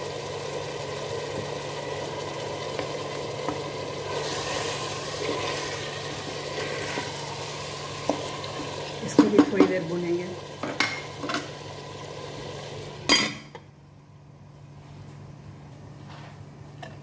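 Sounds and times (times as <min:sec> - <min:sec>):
meat and onion sizzling in oil: 0:00.0 - 0:13.3.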